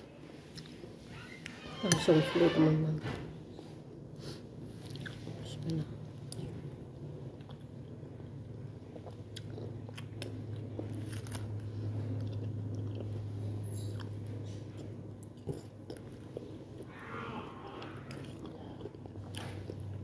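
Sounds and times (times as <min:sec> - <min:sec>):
low steady hum: 0:00.0 - 0:20.0
person chewing soup: 0:04.7 - 0:05.3, 0:06.3 - 0:16.9, 0:17.7 - 0:20.0.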